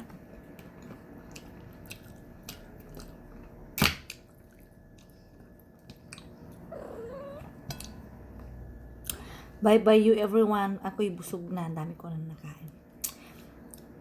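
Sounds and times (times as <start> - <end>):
quiet chewing: 0.0 - 3.6, 4.3 - 9.2.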